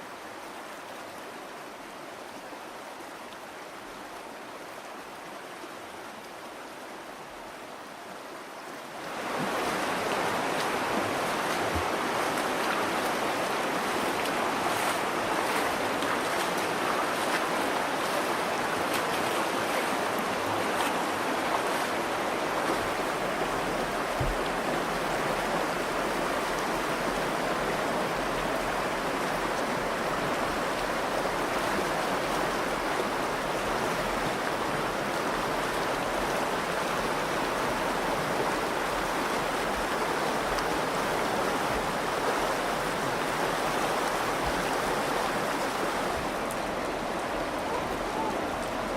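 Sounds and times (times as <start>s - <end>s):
river flowing over rocks: 0.0s - 48.9s.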